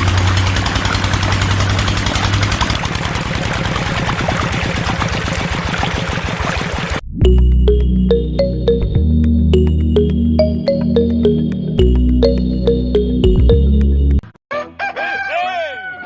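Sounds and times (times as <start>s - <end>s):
small motor running: 0.0s - 7.0s
music: 7.1s - 14.9s.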